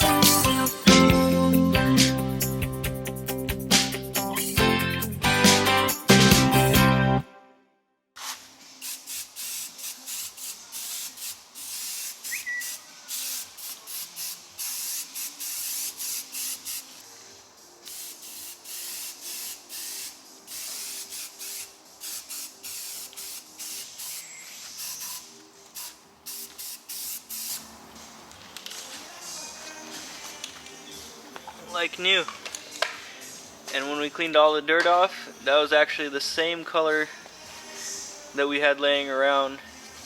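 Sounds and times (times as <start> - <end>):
spray nozzle hissing bursts: 8.2 - 17.0, 17.8 - 27.7.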